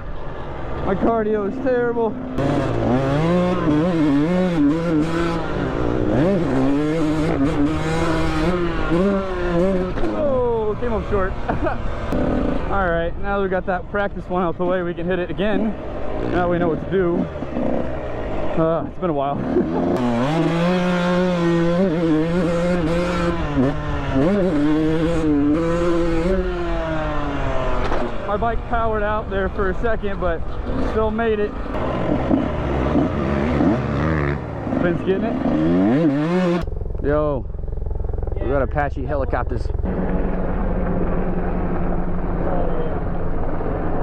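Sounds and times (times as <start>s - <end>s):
dirt bike engine revving: 0.0s - 44.0s
man talking: 0.8s - 2.2s, 10.1s - 11.8s, 12.7s - 17.3s, 18.5s - 19.5s, 28.2s - 31.6s, 34.7s - 35.4s, 37.0s - 37.5s, 38.3s - 39.8s, 42.4s - 43.0s.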